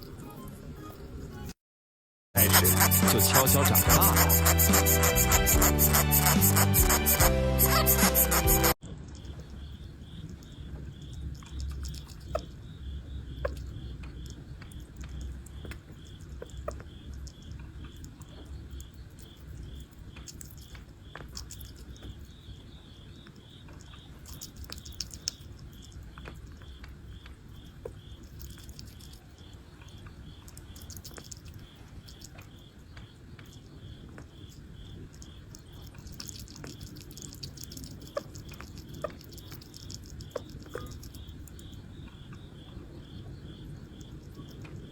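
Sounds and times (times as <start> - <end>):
high insect-like chirping: 2.4 - 8.8, 33.4 - 44.9.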